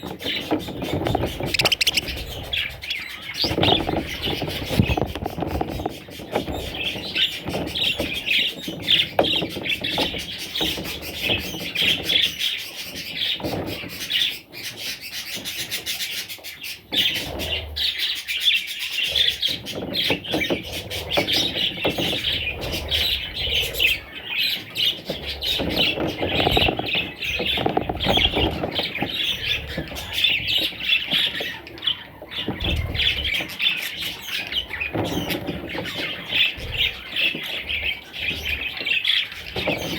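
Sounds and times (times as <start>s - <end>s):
budgerigars chirping and chattering: 0.0s - 39.9s
budgerigar squawks: 1.5s - 3.9s.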